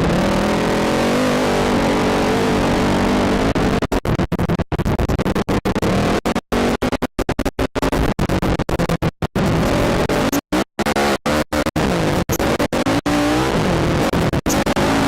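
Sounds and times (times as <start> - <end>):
atv engine revving: 0.0 - 3.9, 9.4 - 15.0.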